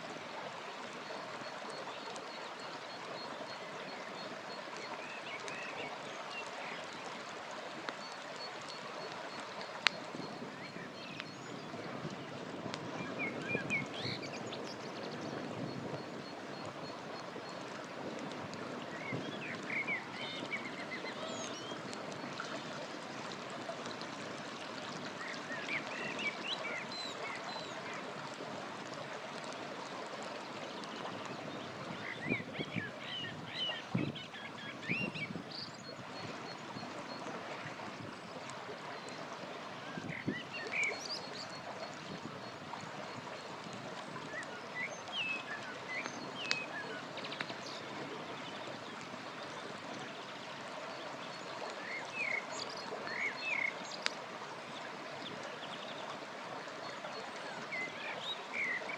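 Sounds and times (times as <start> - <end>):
river flowing: 0.0 - 58.9
campfire crackling: 2.1 - 11.4, 41.4 - 49.9.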